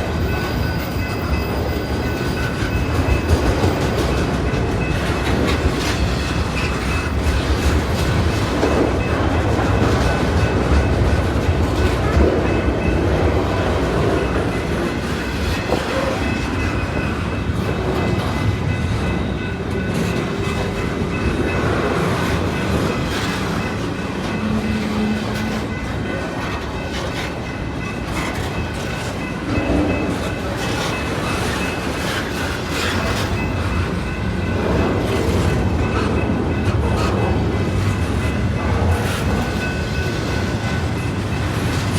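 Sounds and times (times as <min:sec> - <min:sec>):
freight train rumbling past: 0:00.0 - 0:41.9.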